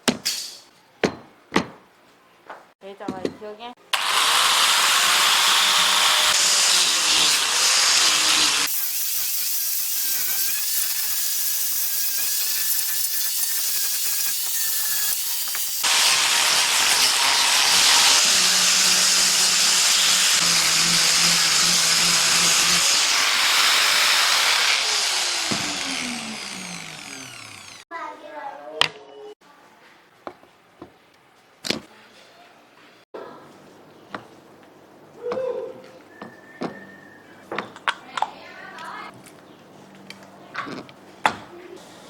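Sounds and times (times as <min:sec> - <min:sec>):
power tool hissing: 0:04.0 - 0:27.8.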